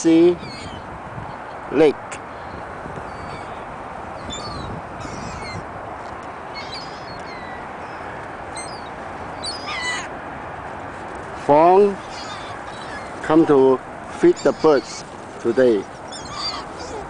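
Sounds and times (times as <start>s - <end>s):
gulls and ducks calling: 2.3s - 5.7s, 6.4s - 10.2s, 11.9s - 17.0s.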